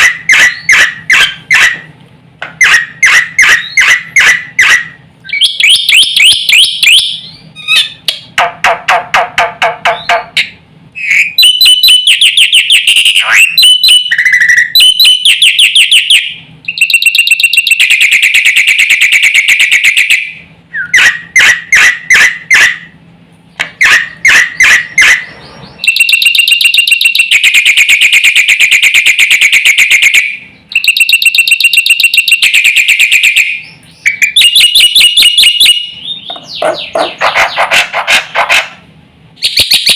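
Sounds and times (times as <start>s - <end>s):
bird singing harsh chatters: 0.0s - 1.8s, 2.6s - 8.3s, 9.8s - 18.9s, 23.5s - 27.8s, 30.0s - 38.8s, 39.4s - 39.9s.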